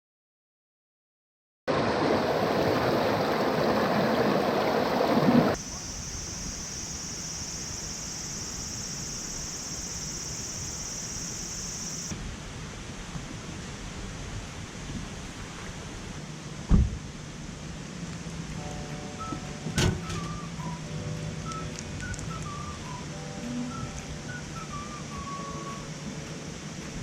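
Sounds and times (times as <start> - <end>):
mountain stream rushing: 1.7 - 12.6
high-pitched hiss: 5.5 - 12.1, 18.6 - 27.0.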